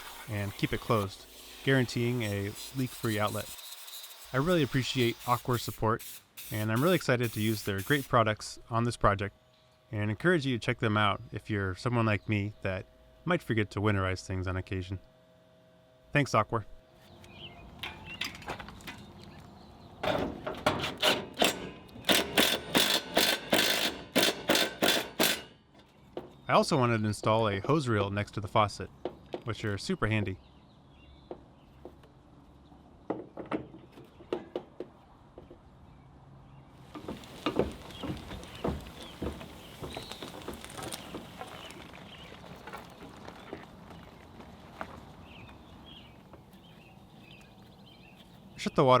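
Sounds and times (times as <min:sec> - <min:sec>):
hand tool strokes: 0:00.0 - 0:08.1.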